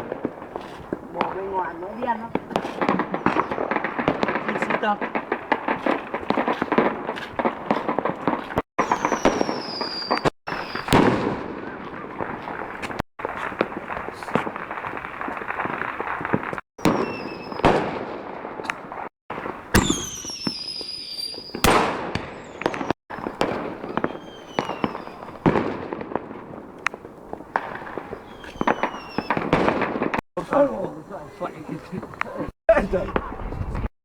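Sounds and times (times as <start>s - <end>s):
fireworks crackling and banging: 0.0s - 33.9s
fireworks whistles falling in pitch: 1.6s - 18.0s, 18.6s - 25.9s, 27.5s - 30.2s.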